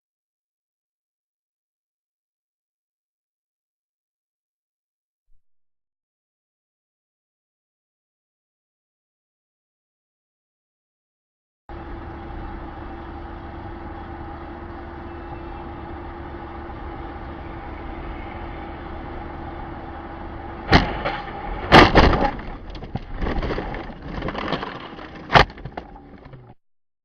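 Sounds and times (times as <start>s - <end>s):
vehicle engine and road noise: 11.7s - 26.6s
sharp bang: 20.7s - 22.6s
crashing impacts with clattering: 20.7s - 26.3s.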